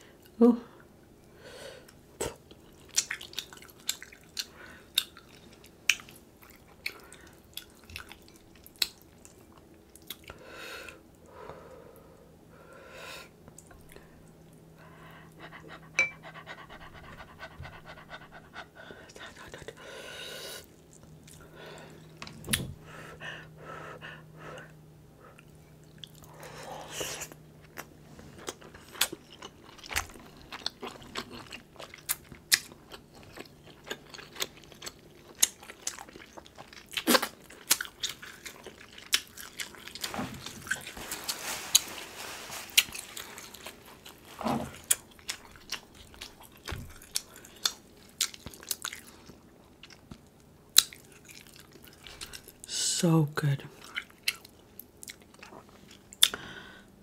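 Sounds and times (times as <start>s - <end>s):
person chewing: 1.8s - 11.0s, 20.6s - 22.5s, 25.3s - 52.7s, 53.8s - 56.4s.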